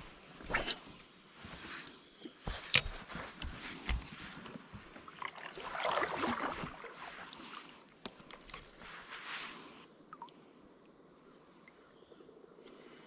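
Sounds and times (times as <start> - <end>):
water swishing against boat: 0.0 - 9.8.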